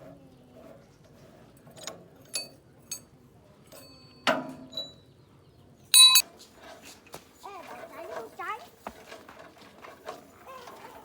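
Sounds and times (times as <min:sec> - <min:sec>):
high ringing squeal: 0:06.0 - 0:06.2
metal parts and tools clinking: 0:06.0 - 0:06.2.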